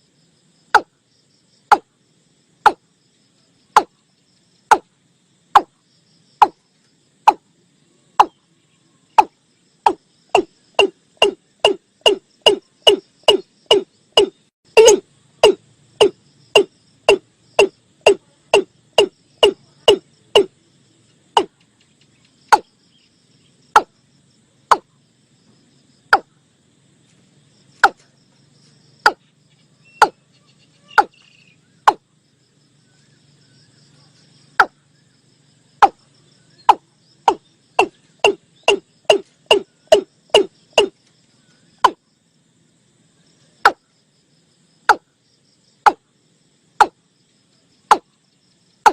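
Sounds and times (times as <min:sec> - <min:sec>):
watercock calling: 0:36.7 - 0:40.9.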